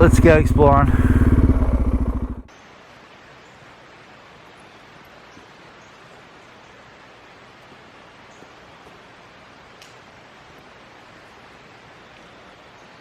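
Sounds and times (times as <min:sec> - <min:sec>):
motorcycle engine idling: 0:00.0 - 0:02.5
faint steady hiss: 0:02.5 - 0:13.0.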